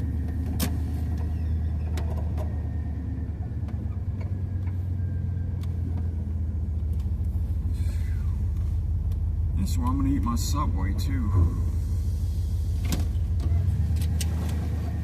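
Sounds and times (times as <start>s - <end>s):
van engine low rumble: 0.0s - 15.0s.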